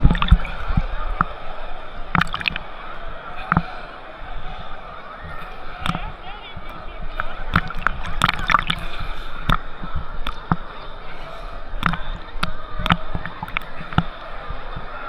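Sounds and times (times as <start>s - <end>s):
crowd noise: 0.0s - 15.0s
wash of water: 0.0s - 15.0s.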